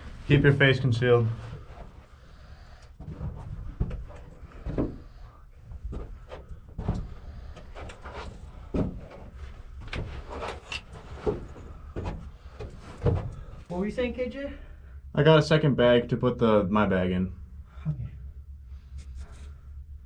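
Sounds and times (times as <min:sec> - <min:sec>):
people handling gear: 0:00.0 - 0:13.7.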